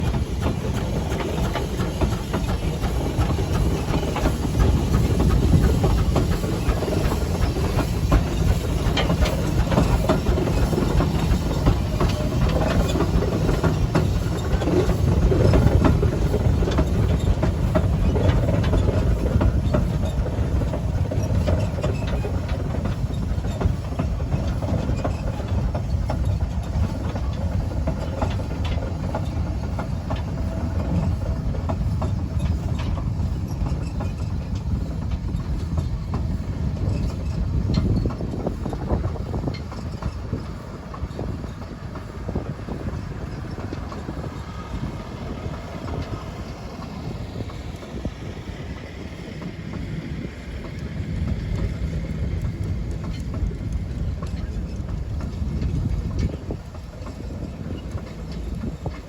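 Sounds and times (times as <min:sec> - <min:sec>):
steam hiss: 0:00.0 - 0:35.6
steam traction engine driving past: 0:00.0 - 0:59.0.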